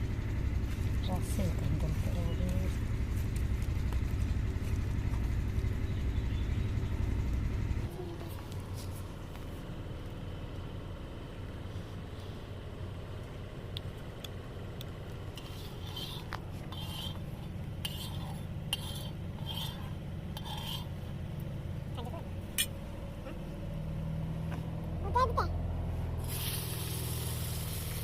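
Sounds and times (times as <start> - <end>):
steady low rumble: 0.0 - 28.0
metal utensil scraping a pot: 15.4 - 21.0.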